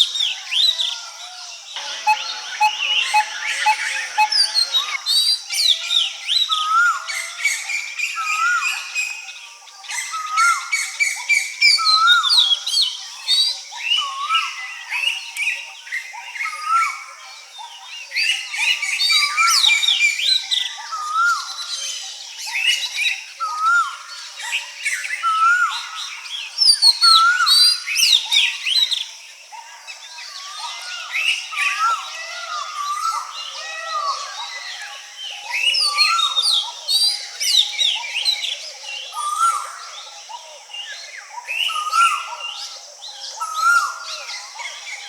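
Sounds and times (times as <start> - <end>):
birds singing and calling: 0.0 - 45.0
high chirps and trills: 1.8 - 5.0.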